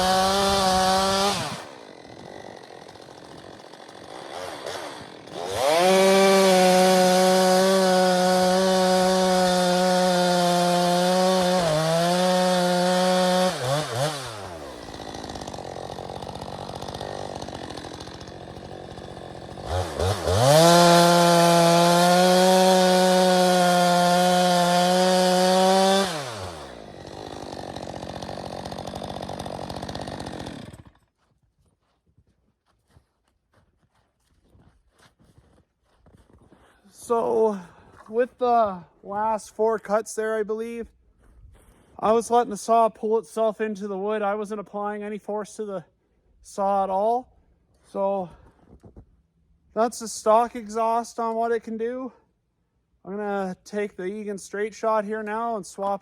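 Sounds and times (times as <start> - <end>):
chainsaw cutting at full throttle: 0.0 - 31.1.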